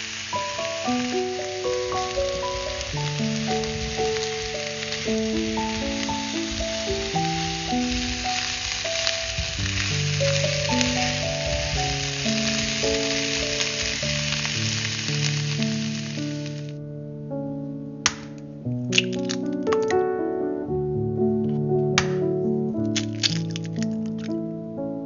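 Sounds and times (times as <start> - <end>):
vegetables sizzling in a pan: 0.0 - 16.7.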